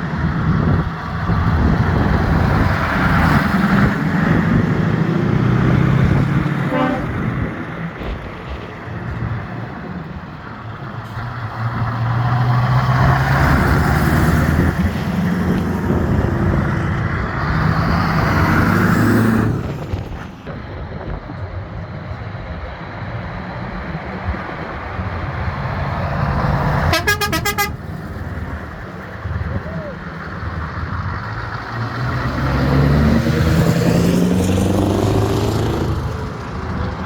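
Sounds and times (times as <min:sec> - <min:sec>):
truck engines running: 0:00.0 - 0:37.0
truck horn toot: 0:06.6 - 0:07.5, 0:26.9 - 0:28.0.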